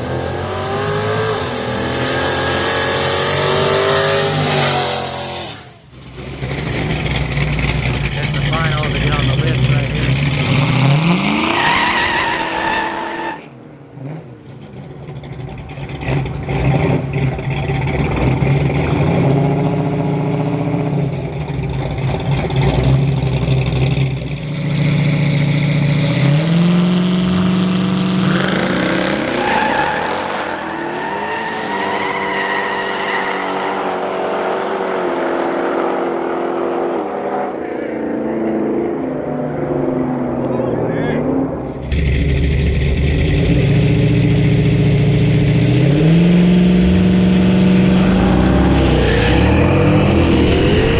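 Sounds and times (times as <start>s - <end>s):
car engines accelerating hard: 0.0s - 50.9s.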